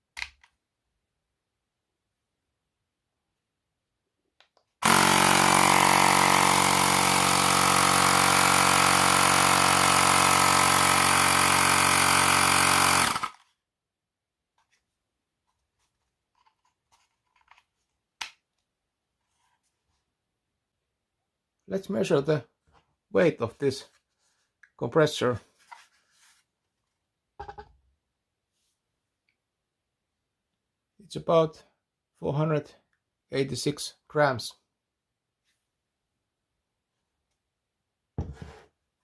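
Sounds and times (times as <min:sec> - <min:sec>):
small electric pump running: 0:04.8 - 0:13.4.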